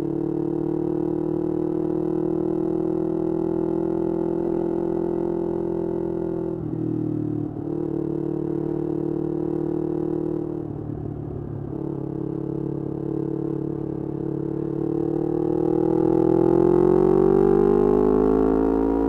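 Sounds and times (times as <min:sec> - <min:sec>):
motorcycle engine revving: 0:11.7 - 0:19.0.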